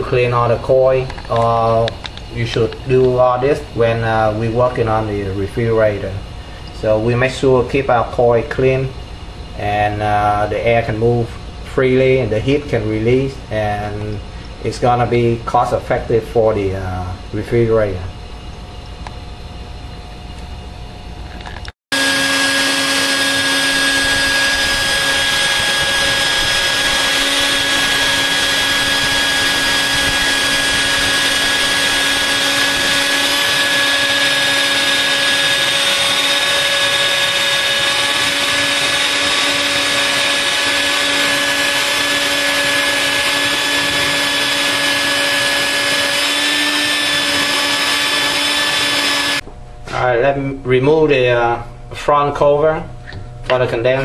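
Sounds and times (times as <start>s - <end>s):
vacuum cleaner motor whining: 21.4s - 49.5s.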